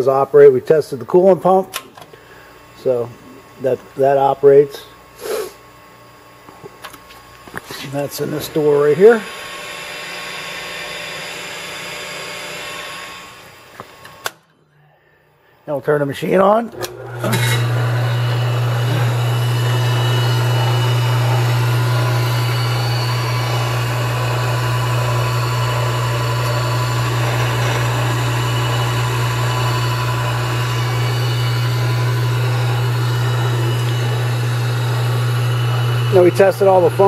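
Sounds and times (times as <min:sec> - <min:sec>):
tool grinder motor humming: 0:06.4 - 0:14.3, 0:16.3 - 0:37.0.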